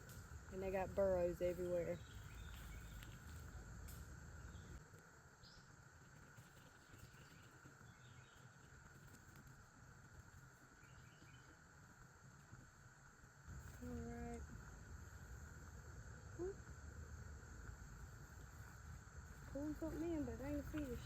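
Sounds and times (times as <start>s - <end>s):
insects chorus: 0.0s - 21.0s
soft bird chirps: 1.6s - 3.7s.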